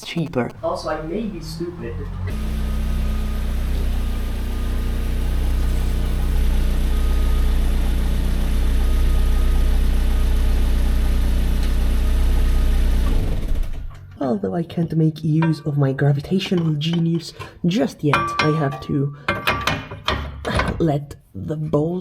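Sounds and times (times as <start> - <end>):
car engine idling through leaking exhaust: 0.5 - 14.0.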